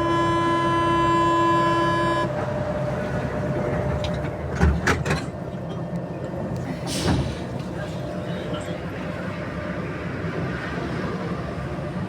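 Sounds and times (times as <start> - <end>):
hum of train carriage: 0.0 - 12.0.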